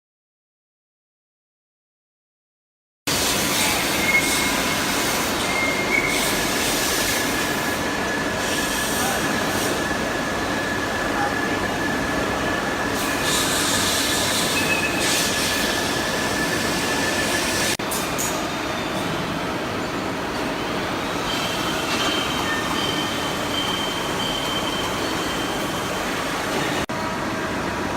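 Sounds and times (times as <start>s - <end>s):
thin high whine: 3.3s - 19.1s
short high squeals: 3.6s - 9.0s, 13.1s - 17.5s.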